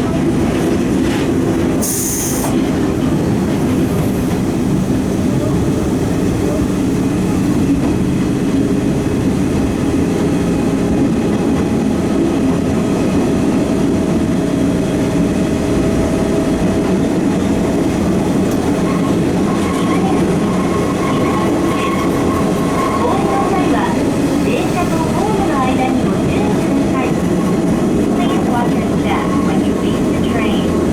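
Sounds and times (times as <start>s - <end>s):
train wheels and motors rumbling: 0.0s - 30.9s.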